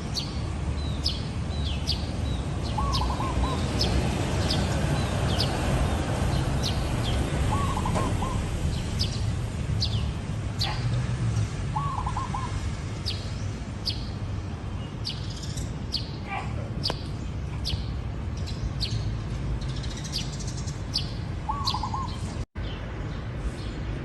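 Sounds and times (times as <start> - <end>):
small birds chirping: 0.0 - 24.0
dove cooing: 7.5 - 8.5, 11.8 - 12.6.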